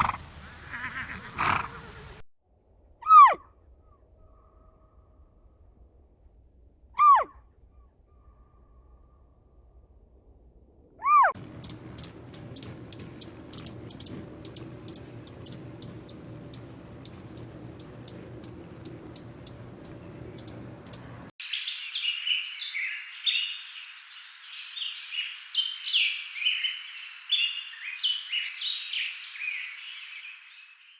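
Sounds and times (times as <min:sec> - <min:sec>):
low hum: 0:02.5 - 0:21.4
small bird chirping: 0:11.3 - 0:30.9
sharp irregular clicks: 0:11.4 - 0:21.3.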